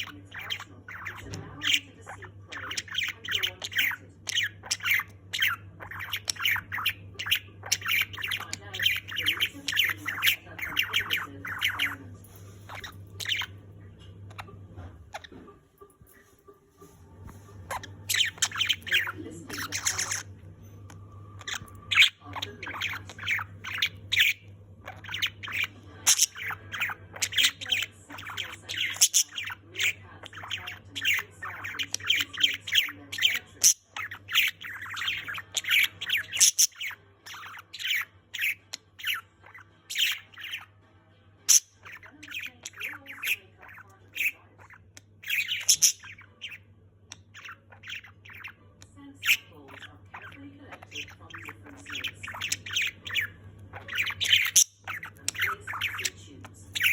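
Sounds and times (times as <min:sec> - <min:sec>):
budgerigar chattering: 0:00.0 - 0:12.0, 0:12.7 - 0:13.5, 0:17.7 - 0:20.3, 0:21.4 - 0:40.7, 0:41.5 - 0:48.6, 0:49.2 - 0:56.9.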